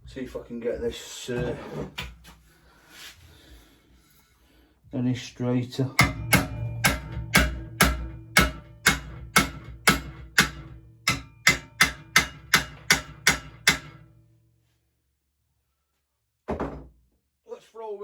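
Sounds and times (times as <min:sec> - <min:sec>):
hammer striking metal: 0:06.0 - 0:14.3.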